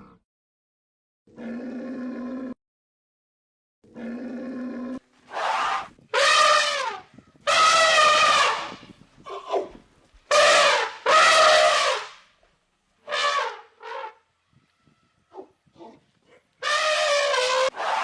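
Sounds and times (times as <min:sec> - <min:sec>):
animal calls: 0:05.3 - 0:12.2, 0:13.1 - 0:18.0.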